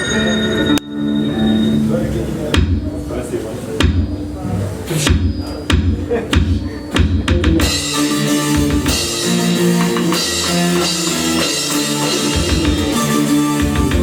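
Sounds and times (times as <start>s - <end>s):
live rock band playing: 7.0s - 14.0s.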